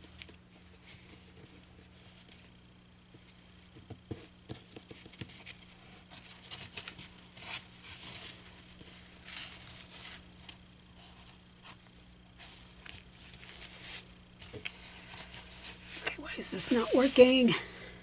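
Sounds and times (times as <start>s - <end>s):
fabric and styrofoam rustling: 4.4s - 18.0s.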